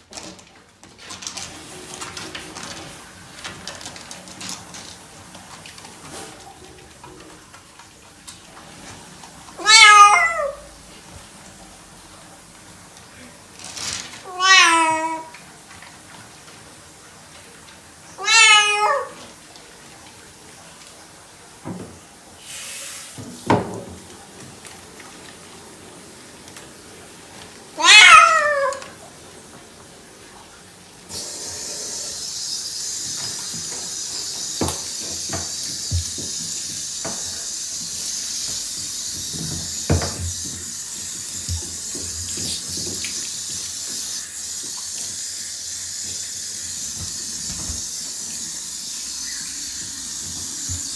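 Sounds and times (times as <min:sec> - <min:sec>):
running water hissing: 0:01.6 - 0:50.9
cat meowing: 0:09.6 - 0:10.7, 0:14.2 - 0:15.4, 0:18.2 - 0:19.2, 0:27.8 - 0:29.0.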